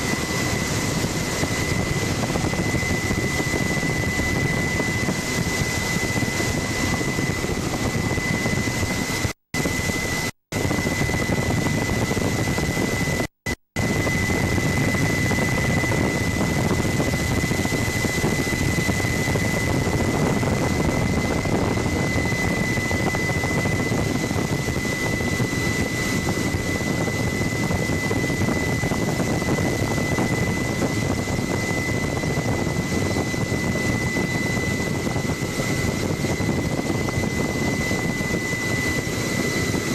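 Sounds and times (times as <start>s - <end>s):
helicopter rotor and engine: 0.0s - 39.9s
high whine: 0.0s - 39.9s.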